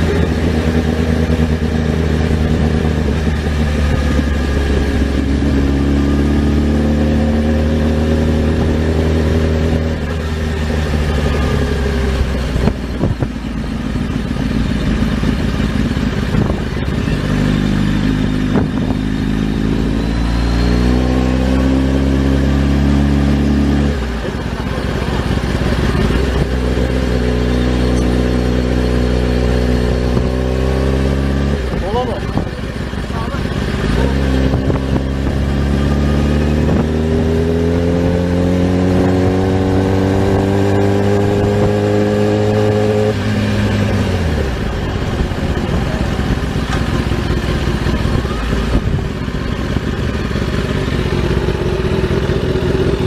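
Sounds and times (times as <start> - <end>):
motorcycle engine under throttle: 0.0 - 53.0
engine knocks: 44.6 - 50.3.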